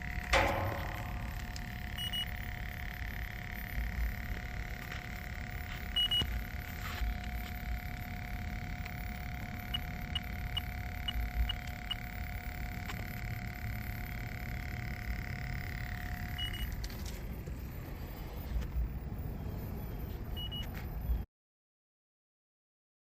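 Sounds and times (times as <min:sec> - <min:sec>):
steady electronic tone: 0:00.0 - 0:21.2
short high beeps: 0:00.3 - 0:08.2.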